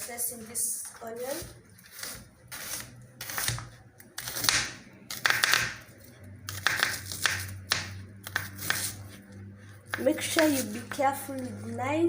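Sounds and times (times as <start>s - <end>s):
knife slicing onion on board: 1.2s - 5.8s, 6.5s - 9.2s, 9.8s - 11.6s.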